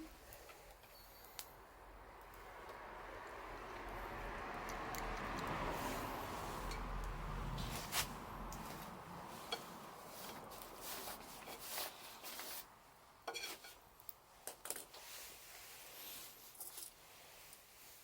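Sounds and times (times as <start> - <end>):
soft background hiss: 0.0 - 18.0
dishes and utensils clinking: 13.3 - 13.8.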